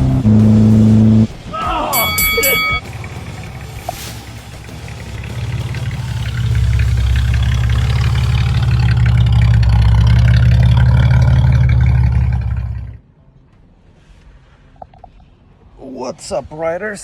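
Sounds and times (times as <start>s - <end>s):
two-stroke car engine running: 0.0s - 1.4s, 2.6s - 13.0s.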